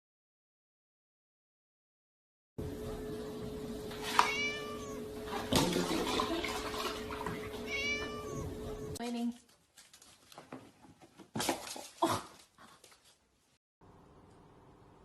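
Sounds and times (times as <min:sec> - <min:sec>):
steady hum: 0:02.6 - 0:09.0
cat meowing: 0:04.0 - 0:05.1, 0:07.6 - 0:09.0.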